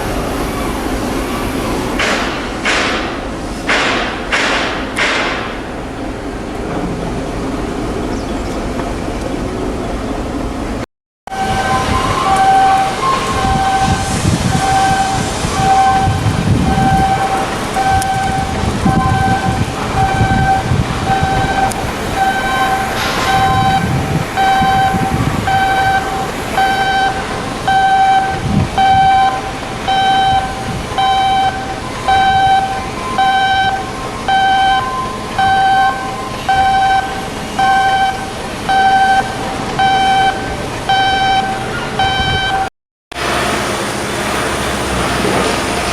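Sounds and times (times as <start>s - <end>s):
heavy machinery rumbling and knocking: 0.0s - 45.9s
electronic warning beeps: 11.3s - 42.7s.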